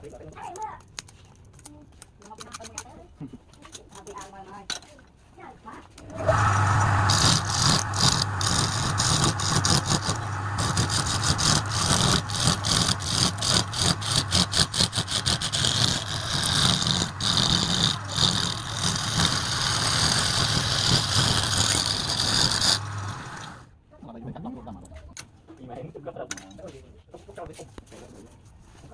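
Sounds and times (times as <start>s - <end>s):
turning tool scraping wood: 6.0s - 23.7s
wood lathe motor humming: 6.0s - 23.7s.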